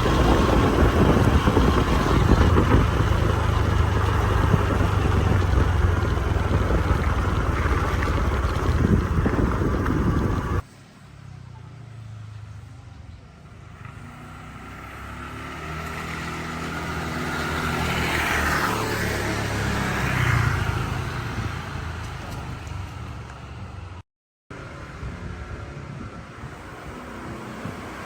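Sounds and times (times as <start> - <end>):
vehicle engine passing by: 0.0 - 10.6, 13.6 - 23.1.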